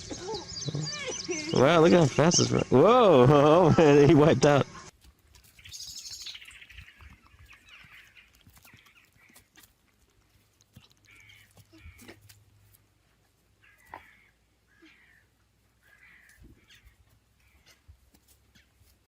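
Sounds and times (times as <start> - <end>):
faint high bird calls: 0.0 - 1.8.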